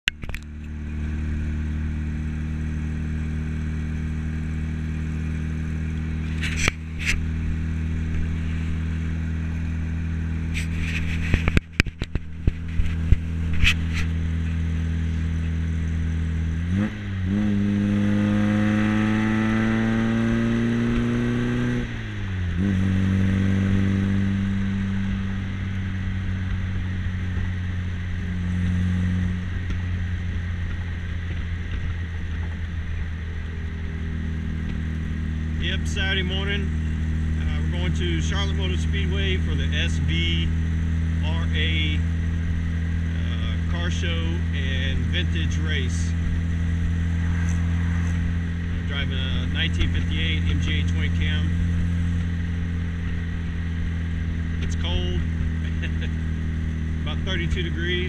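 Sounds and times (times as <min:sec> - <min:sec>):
car engine droning: 0:00.0 - 0:58.0
gear change: 0:00.0 - 0:58.0.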